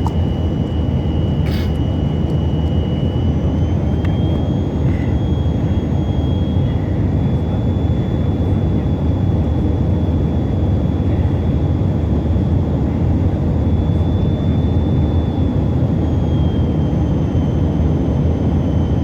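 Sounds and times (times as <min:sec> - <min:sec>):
jet engines rumbling: 0:00.0 - 0:07.2
high engine whine: 0:00.0 - 0:19.0.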